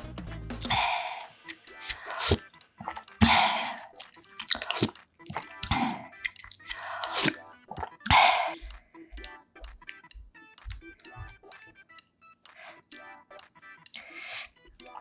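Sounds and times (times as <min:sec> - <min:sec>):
wet chewing and slurping: 0:00.6 - 0:09.3, 0:10.7 - 0:11.6, 0:13.9 - 0:15.0
short clicks: 0:04.0 - 0:14.9.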